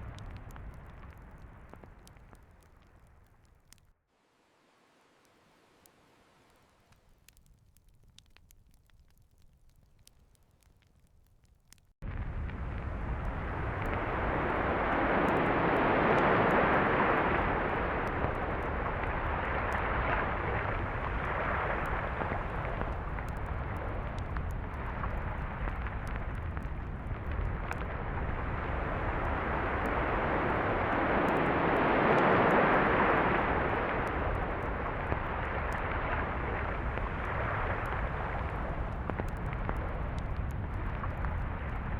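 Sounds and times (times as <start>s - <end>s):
ocean waves breaking: 28.4s - 34.4s.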